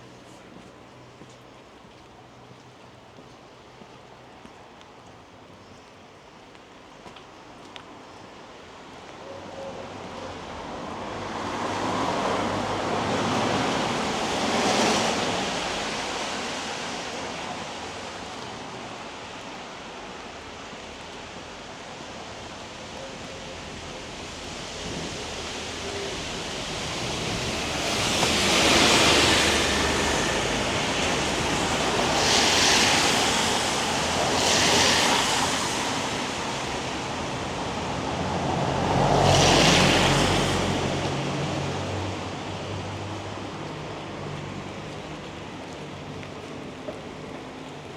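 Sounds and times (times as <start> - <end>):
tyres hissing on wet road: 9.8 - 47.9
light rain hiss: 11.6 - 37.9.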